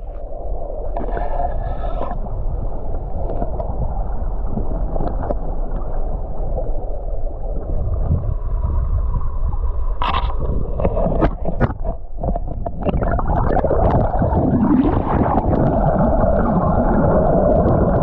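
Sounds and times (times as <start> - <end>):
muffled underwater river rushing: 0.0 - 18.0.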